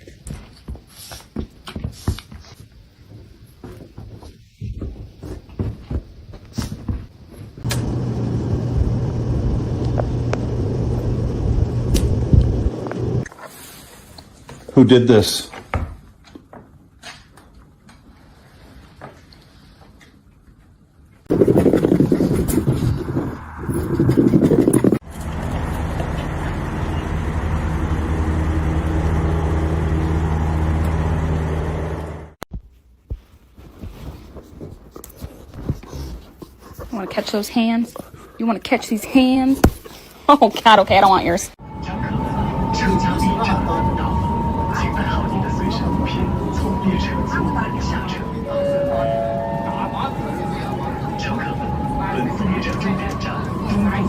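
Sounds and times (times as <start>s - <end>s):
low motor hum: 7.7s - 13.3s, 21.3s - 32.4s, 41.6s - 54.0s.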